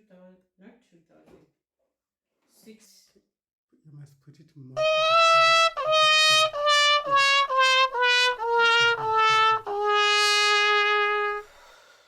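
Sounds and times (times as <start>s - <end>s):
descending comic horn notes: 4.8s - 11.4s.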